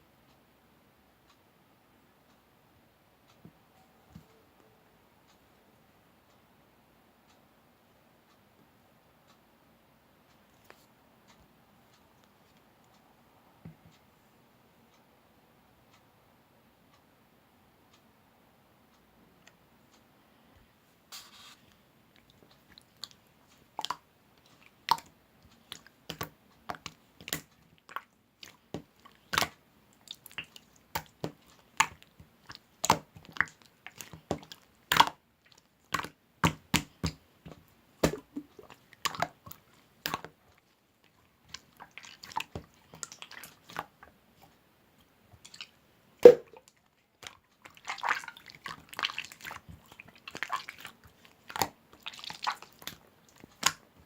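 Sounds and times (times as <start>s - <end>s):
squishy crackling: 21.2s - 37.2s, 38.0s - 44.5s, 45.4s - 53.9s
sharp wet clicks: 22.1s - 44.6s, 45.4s - 54.0s.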